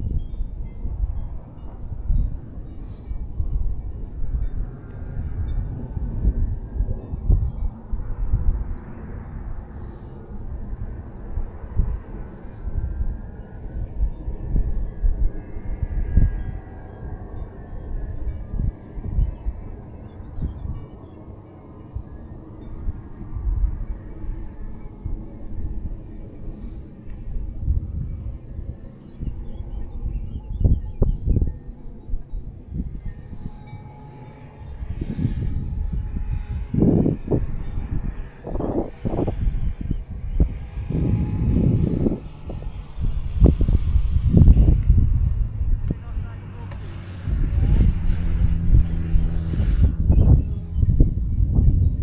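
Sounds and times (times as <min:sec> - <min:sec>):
insects chirring: 0:00.0 - 0:52.0
wind buffeting microphone: 0:00.0 - 0:52.0
high-pitched pulsing tone: 0:29.2 - 0:52.0.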